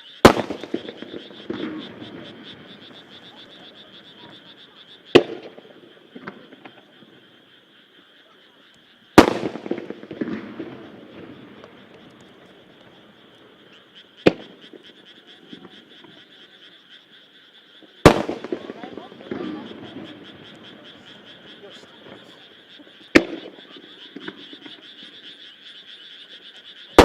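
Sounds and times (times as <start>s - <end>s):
firework shells bursting: 0.2s - 4.5s, 5.1s - 6.8s, 9.2s - 15.8s, 18.0s - 25.2s
rumbling echo: 18.2s - 22.3s.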